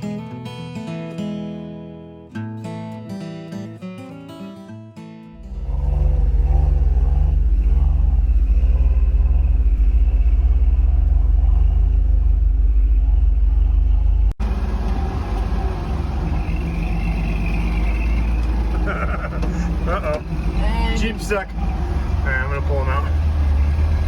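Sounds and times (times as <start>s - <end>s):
engine rumbling: 5.3s - 24.0s.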